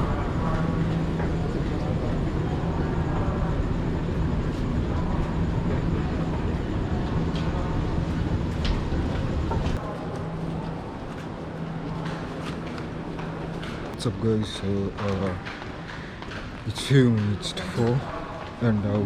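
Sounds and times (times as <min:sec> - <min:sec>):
train rumble heard inside coach: 0:00.0 - 0:09.9.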